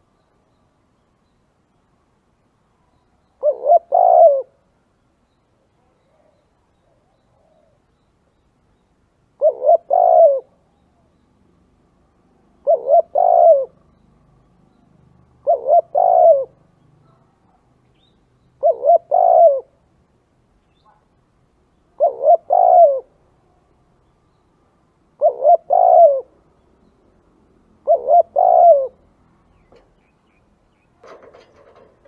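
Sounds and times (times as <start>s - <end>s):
dove cooing: 3.4s - 4.6s, 9.4s - 10.6s, 12.6s - 13.8s, 15.4s - 17.2s, 18.6s - 19.8s, 22.0s - 23.2s, 25.2s - 26.4s, 27.8s - 30.0s, 31.0s - 32.0s.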